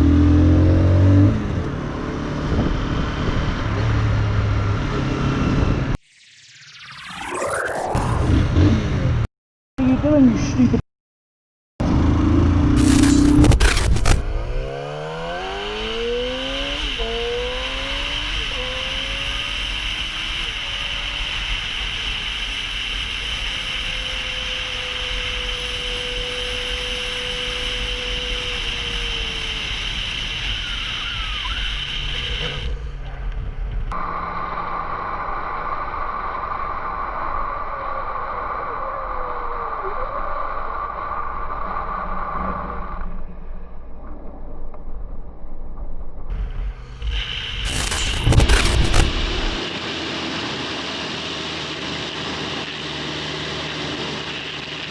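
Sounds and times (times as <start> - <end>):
motorcycle engine accelerating: 11.8 - 30.5.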